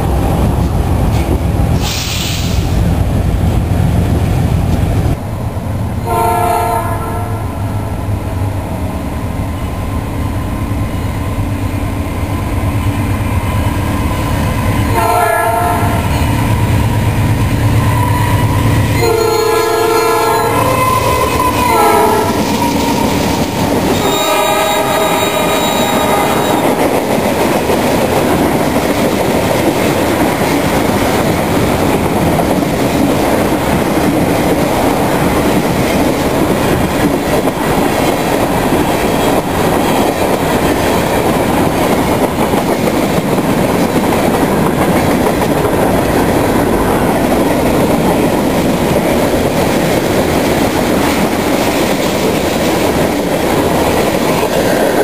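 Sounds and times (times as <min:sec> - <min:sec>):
locomotive horn: 0:06.0 - 0:07.6, 0:14.9 - 0:16.3, 0:17.8 - 0:23.2, 0:23.9 - 0:26.8.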